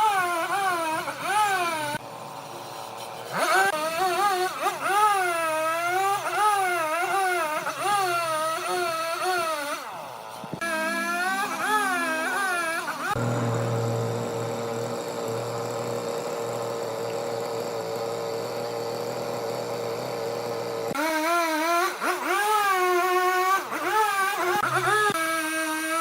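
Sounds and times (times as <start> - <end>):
lathe tool squealing: 7.4 - 21.0.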